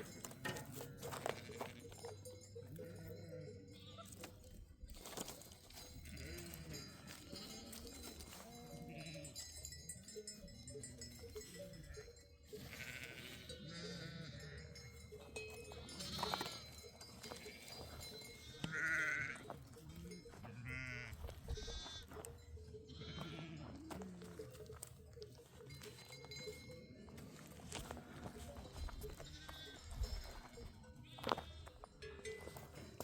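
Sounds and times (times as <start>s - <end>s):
sheep bleating: 0.0s - 2.1s, 2.7s - 4.4s, 6.0s - 9.5s, 10.8s - 15.0s, 15.6s - 24.6s, 27.0s - 31.9s.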